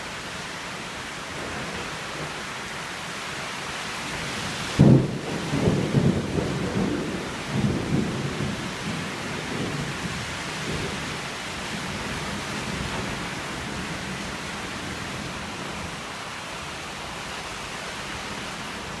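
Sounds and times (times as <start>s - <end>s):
steady rain: 0.0s - 19.0s
thunder rumbling: 4.7s - 15.9s.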